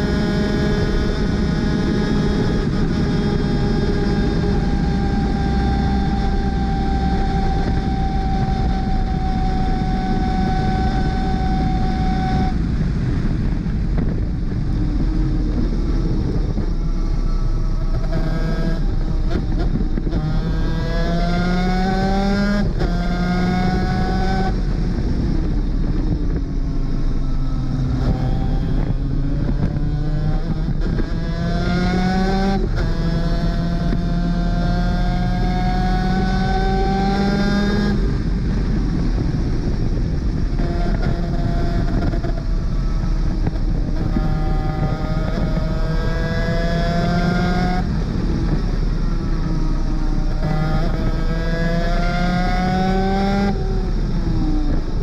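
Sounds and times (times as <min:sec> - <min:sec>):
wind rush: 0:00.0 - 0:55.0
kart engine revving: 0:26.8 - 0:55.0.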